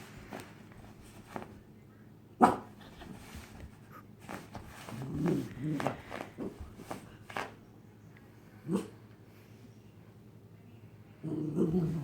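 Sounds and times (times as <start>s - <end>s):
puppy growling: 4.8s - 6.6s, 11.2s - 12.0s.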